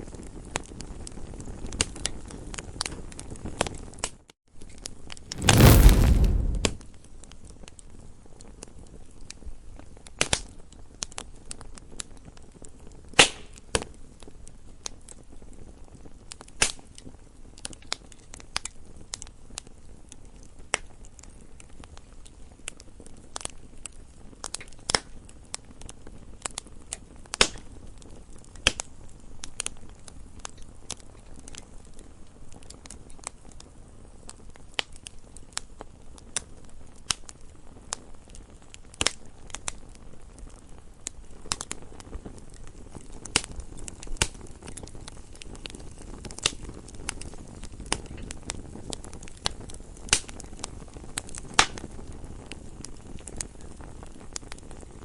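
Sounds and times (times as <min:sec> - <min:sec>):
low soft hiss: 0:05.3 - 0:06.8
wood fire pops and snaps: 0:05.3 - 0:06.8, 0:34.4 - 0:55.0.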